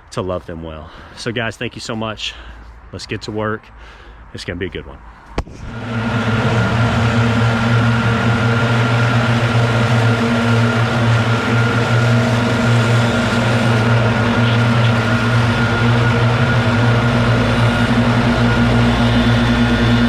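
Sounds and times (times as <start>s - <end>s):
leaf blower running: 5.6s - 20.0s.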